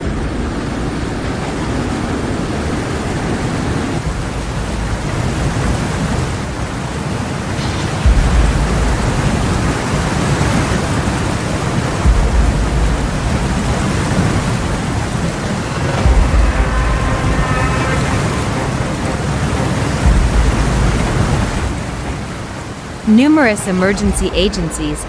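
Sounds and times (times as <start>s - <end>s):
floodwater rushing: 0.0s - 25.0s
deep rumbling surge: 4.0s - 10.6s, 11.3s - 23.1s.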